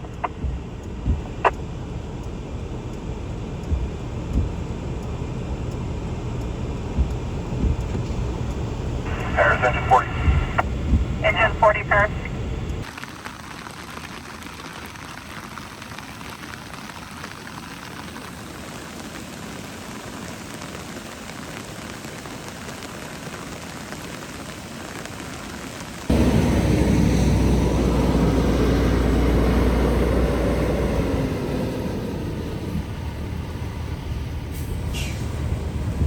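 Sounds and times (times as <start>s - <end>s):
loud low rumble with drone: 0.0s - 12.9s, 26.1s - 36.0s
heavy rain hissing: 9.0s - 32.6s.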